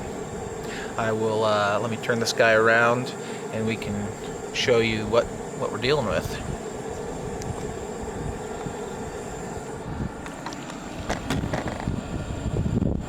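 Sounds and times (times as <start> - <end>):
wind rumbling on microphone: 0.0 - 1.2, 3.7 - 13.0
camera handling knocks: 10.2 - 11.9.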